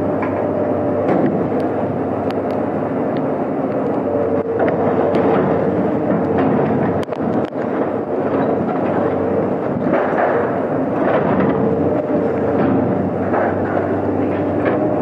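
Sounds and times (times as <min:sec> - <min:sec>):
machinery engine humming: 0:00.0 - 0:15.0
metal knocking and clanking: 0:04.6 - 0:15.0.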